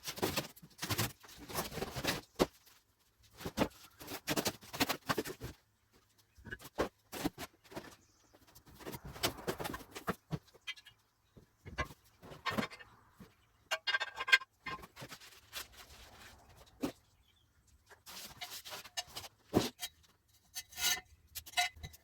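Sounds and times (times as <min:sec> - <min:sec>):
metal parts clattering and knocking: 0:13.6 - 0:16.9.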